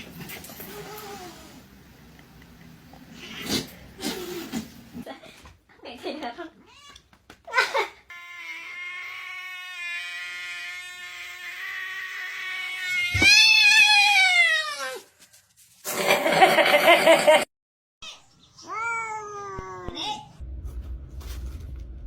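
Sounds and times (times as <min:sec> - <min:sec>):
cats meowing: 0:08.1 - 0:15.0.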